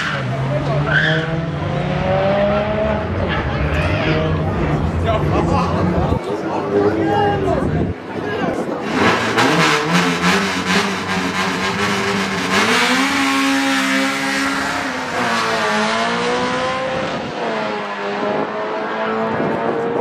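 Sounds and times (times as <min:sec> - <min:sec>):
drag car engine accelerating: 0:08.7 - 0:20.0.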